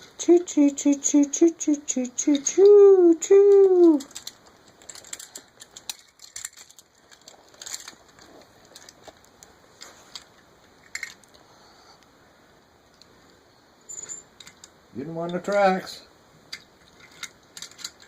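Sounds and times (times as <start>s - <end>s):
toy train pieces clicking and tapping: 0.2s - 9.5s, 14.4s - 18.0s.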